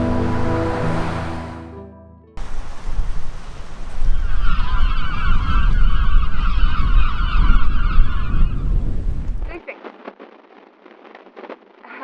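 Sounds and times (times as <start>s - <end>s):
wind rumbling on microphone: 2.4s - 12.0s
flock of birds calling: 4.0s - 8.7s.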